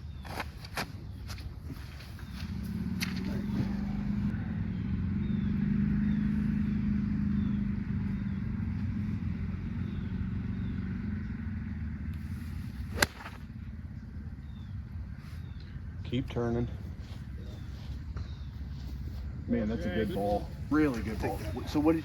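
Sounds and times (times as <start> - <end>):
engine humming: 1.4 - 22.0
golf club striking ball: 12.8 - 13.5.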